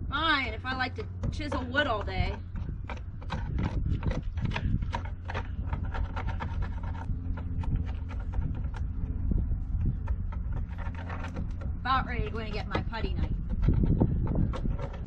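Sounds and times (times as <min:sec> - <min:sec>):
steady low hum: 0:00.0 - 0:15.0
chisel scraping wood: 0:00.6 - 0:15.0.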